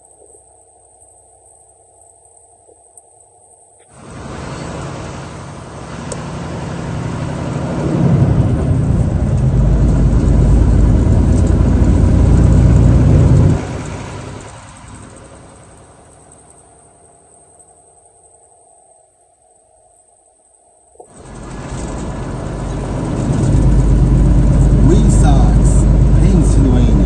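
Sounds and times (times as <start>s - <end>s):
road noise: 3.8s - 17.2s, 21.0s - 27.0s
motor vehicle engine: 3.9s - 17.2s, 21.1s - 27.0s.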